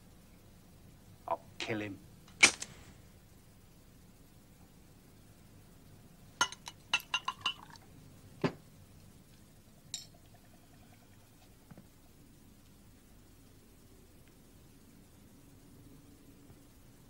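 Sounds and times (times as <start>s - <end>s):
glassware and dishes clinking: 6.4s - 7.8s, 9.9s - 10.2s.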